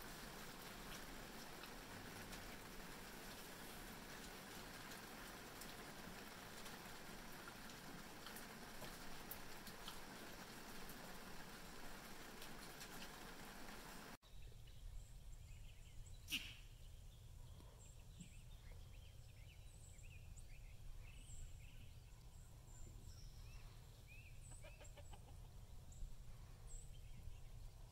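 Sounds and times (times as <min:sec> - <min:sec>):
bird chirps: 0:14.2 - 0:26.1.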